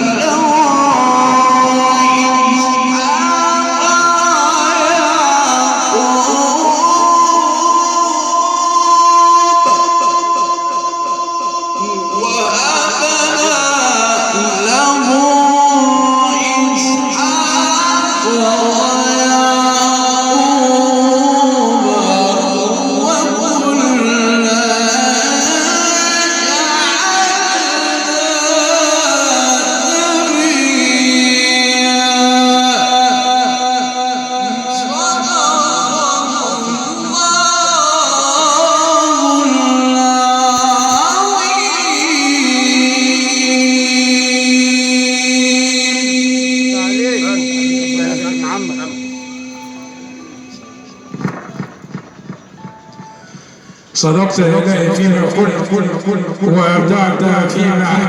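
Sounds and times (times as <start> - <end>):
man chanting through sound system: 0.0 - 58.0
man reciting with echo: 0.0 - 58.0.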